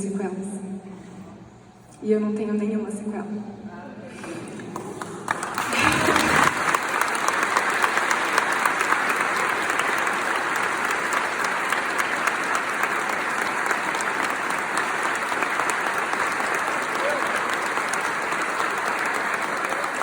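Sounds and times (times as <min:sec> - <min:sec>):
audience applauding: 0:04.2 - 0:20.0.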